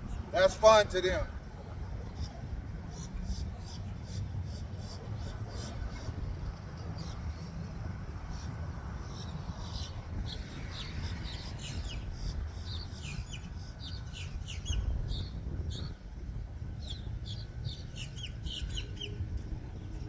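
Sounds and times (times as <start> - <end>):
steady low rumble: 0.0 - 20.0
small birds chirping: 8.3 - 16.0, 16.8 - 19.2.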